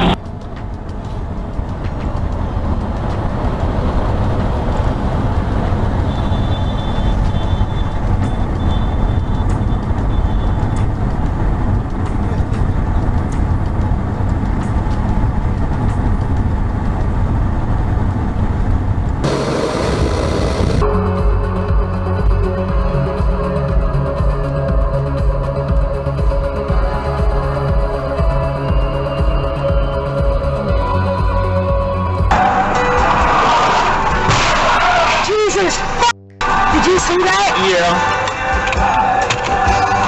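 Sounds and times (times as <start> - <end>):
vehicle road and engine noise: 0.0 - 20.9
faint broken high tone: 19.2 - 20.8.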